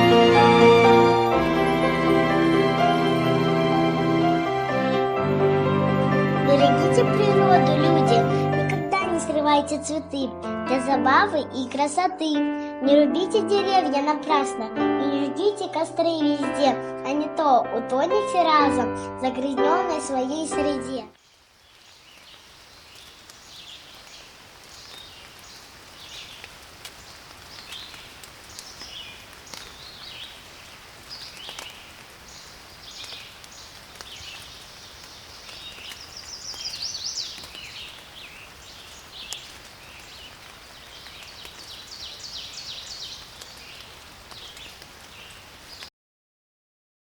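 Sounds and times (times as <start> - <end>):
faint steady hiss: 20.2 - 45.9
songbirds singing and chirping: 20.7 - 45.9.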